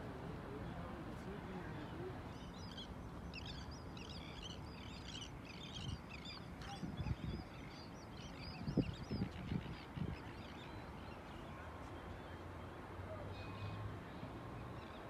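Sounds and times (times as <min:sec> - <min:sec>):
birds chirping and chattering: 0:00.4 - 0:11.5.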